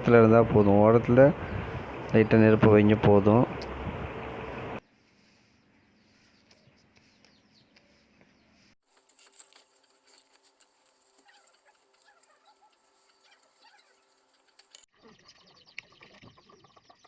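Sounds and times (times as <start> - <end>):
faint chirping bird calls: 4.2 - 8.8, 11.1 - 17.0.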